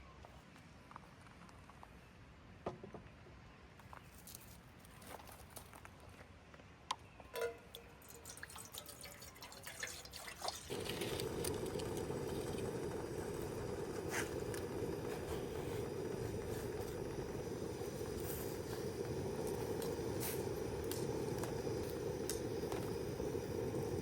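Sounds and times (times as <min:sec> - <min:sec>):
water drips: 0:07.4 - 0:15.1.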